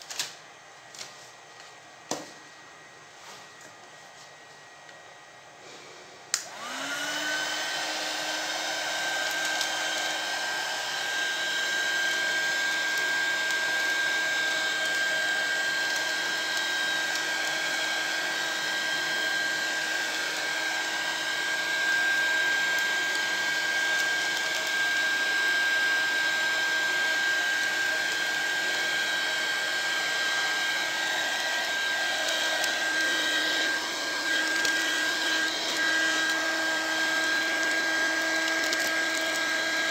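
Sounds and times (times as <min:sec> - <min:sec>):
hot air gun fan whining: 0:03.5 - 0:39.9.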